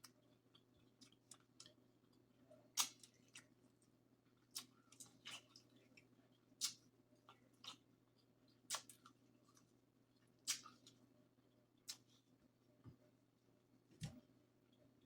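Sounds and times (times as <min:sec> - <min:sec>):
chewing and cracking shellfish: 0:00.0 - 0:11.1.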